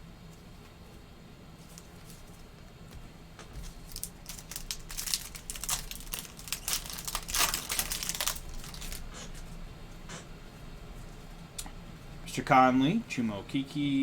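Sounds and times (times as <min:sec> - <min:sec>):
wrapper being torn and crinkled: 0:03.7 - 0:09.1.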